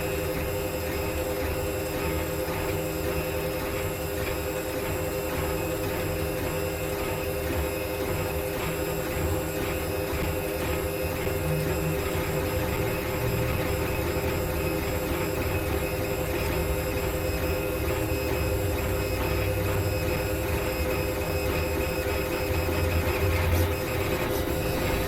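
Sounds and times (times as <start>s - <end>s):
machine hum: 9.0s - 25.0s.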